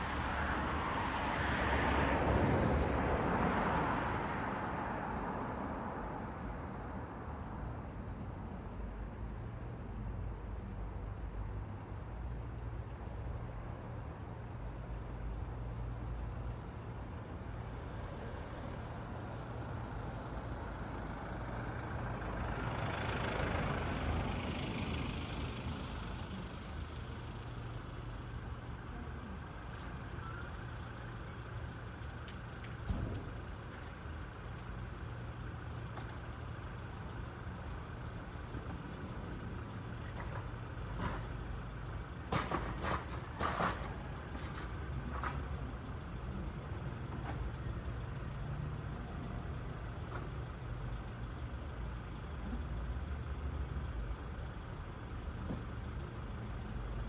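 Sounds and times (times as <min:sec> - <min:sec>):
vehicle passing with tyre hiss: 0:00.0 - 0:05.7, 0:20.2 - 0:27.0
low rumble of traffic: 0:00.0 - 0:57.0.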